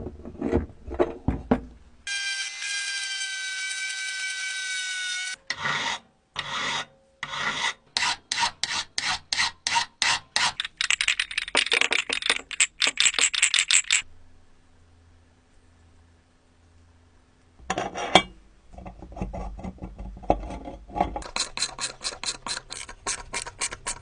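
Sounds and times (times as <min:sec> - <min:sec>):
rasping scrapes: 0:05.5 - 0:10.7, 0:18.8 - 0:24.0.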